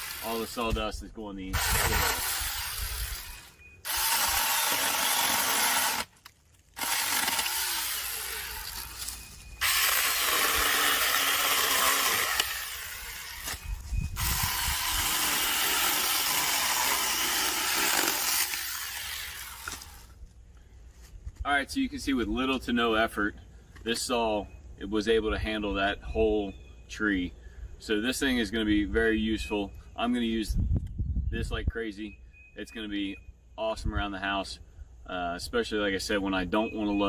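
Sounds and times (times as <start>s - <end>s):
small chainsaw cutting wood: 0.0s - 0.4s, 1.6s - 6.1s, 6.8s - 13.6s, 14.2s - 20.1s.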